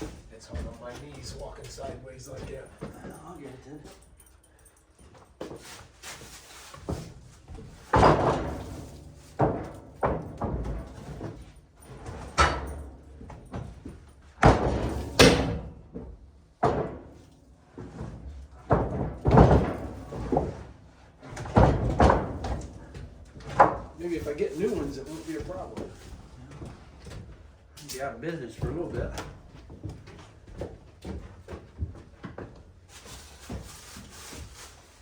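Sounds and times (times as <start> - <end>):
wooden boards thudding: 7.9 - 11.3, 14.4 - 15.9, 18.6 - 20.7, 21.3 - 24.0.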